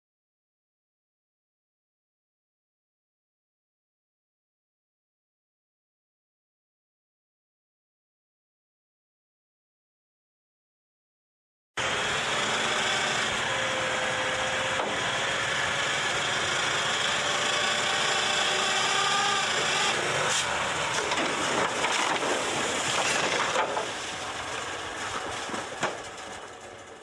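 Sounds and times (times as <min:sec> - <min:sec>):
heavy machinery grinding: 0:11.8 - 0:27.0.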